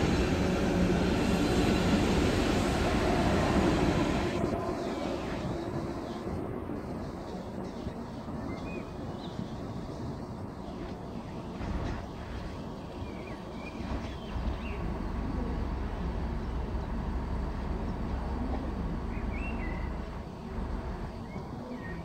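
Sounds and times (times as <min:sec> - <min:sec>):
train rumbling on tracks: 0:00.0 - 0:22.0
bird chirping: 0:19.0 - 0:20.1.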